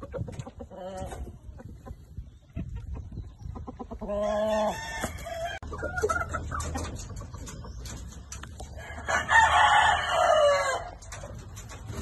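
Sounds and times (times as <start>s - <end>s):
chicken clucks: 0.0s - 12.0s
rooster crowing: 4.2s - 5.6s, 8.8s - 10.9s.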